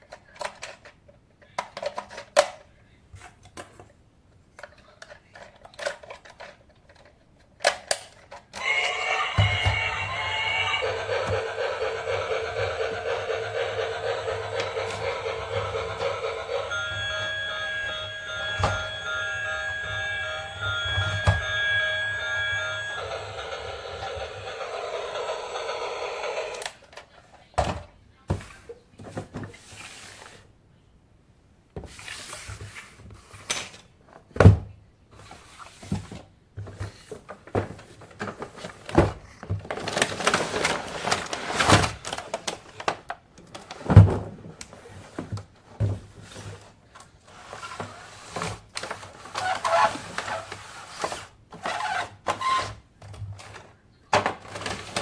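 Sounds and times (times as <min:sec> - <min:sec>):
toys and packaging handled: 0:00.0 - 0:03.9, 0:04.5 - 0:10.8, 0:35.2 - 0:55.0.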